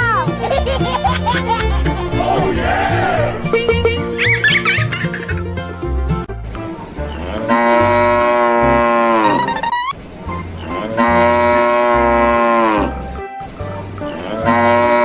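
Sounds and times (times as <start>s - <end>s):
music with low bass beat: 2.0s - 4.6s
cow mooing: 2.1s - 3.8s, 7.1s - 9.4s, 10.8s - 13.0s, 14.2s - 15.0s.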